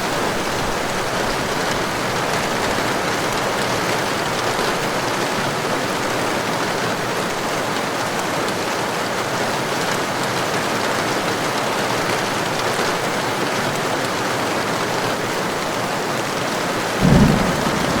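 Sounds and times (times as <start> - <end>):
heavy rain falling: 14.0 - 18.0
low thump: 17.0 - 18.0.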